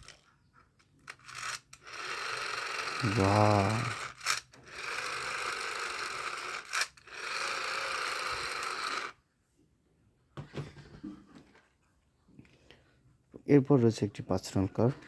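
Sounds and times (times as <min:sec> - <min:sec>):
toy motor whirring: 0:00.0 - 0:09.2.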